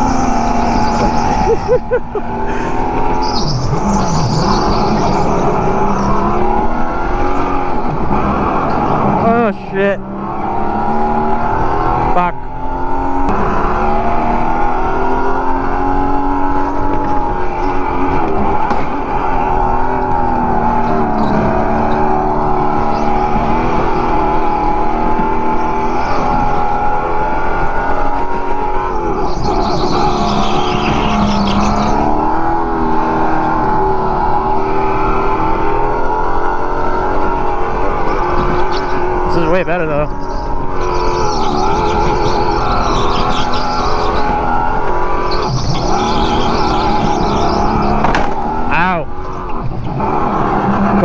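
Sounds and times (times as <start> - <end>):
go-kart motor whining: 0.0 - 51.0
tyre squeal: 2.8 - 6.3, 28.1 - 32.3, 38.1 - 48.0.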